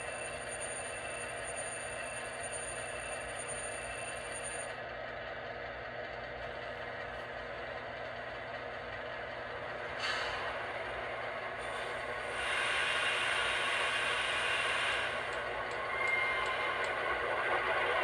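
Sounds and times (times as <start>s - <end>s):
model locomotive diesel engine: 0.0s - 18.0s
faint high whine: 10.2s - 18.0s.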